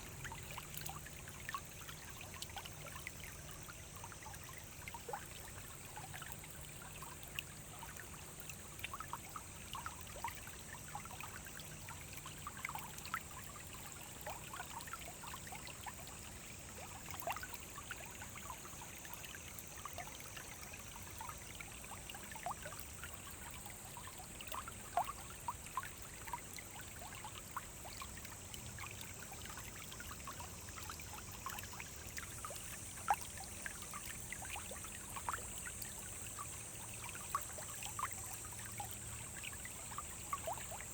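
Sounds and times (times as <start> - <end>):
stream bubbling over stones: 0.0 - 40.9.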